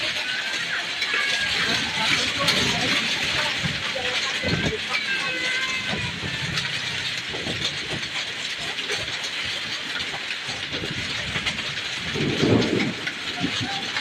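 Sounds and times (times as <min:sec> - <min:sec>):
hail and heavy rain pelting: 0:00.0 - 0:14.0.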